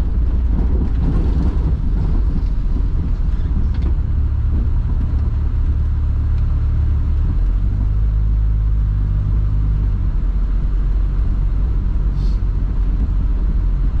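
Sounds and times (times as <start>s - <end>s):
car engine low drone: 0.0s - 14.0s.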